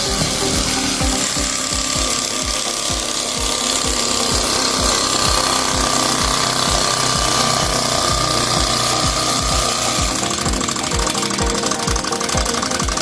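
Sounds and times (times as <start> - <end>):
small model engine knocking: 0.0 - 13.0.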